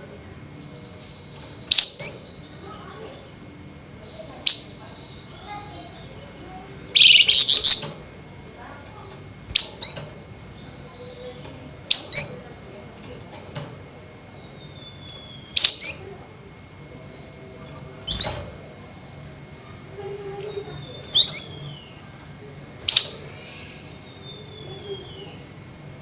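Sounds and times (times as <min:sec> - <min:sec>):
songbird sharp high calls: 0:00.6 - 0:02.6, 0:06.9 - 0:08.1, 0:09.5 - 0:11.0, 0:11.9 - 0:12.5, 0:14.4 - 0:16.2, 0:20.5 - 0:22.0, 0:22.8 - 0:23.4
faint thin falling whistles: 0:18.1 - 0:18.6.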